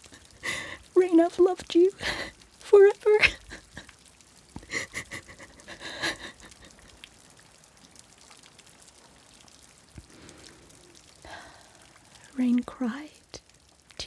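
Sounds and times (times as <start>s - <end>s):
person panting: 0.2s - 0.9s, 4.6s - 6.6s.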